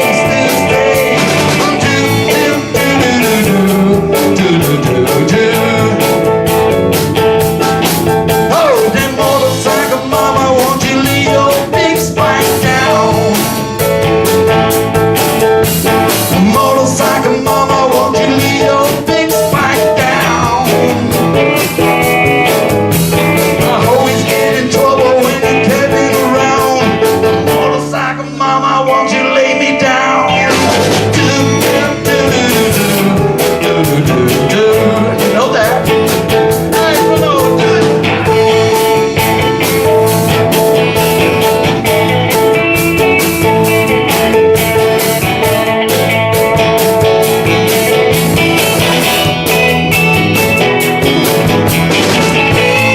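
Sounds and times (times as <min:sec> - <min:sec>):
person singing: 0:00.0 - 0:07.0, 0:08.3 - 0:14.5, 0:16.0 - 0:22.2, 0:23.2 - 0:51.6, 0:52.2 - 0:52.9
drums: 0:00.0 - 0:52.9
electric guitars: 0:00.0 - 0:52.9.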